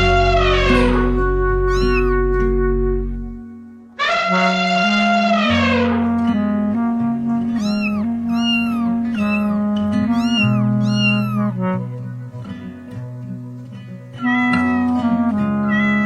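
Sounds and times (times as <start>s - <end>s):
background music with held notes: 0.0s - 16.0s
cat meowing: 1.6s - 2.3s, 7.5s - 11.8s, 14.2s - 16.0s.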